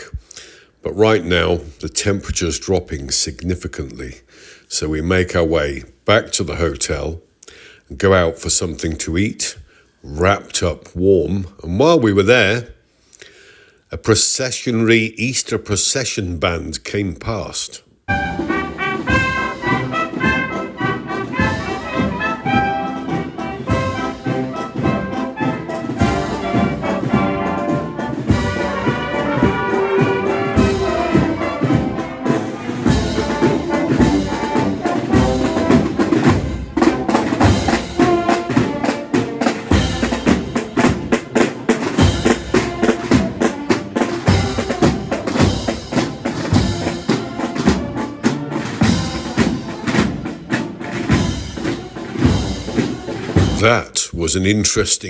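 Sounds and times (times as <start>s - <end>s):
brass instruments playing: 18.1s - 54.2s
steady drum beat: 18.1s - 55.0s.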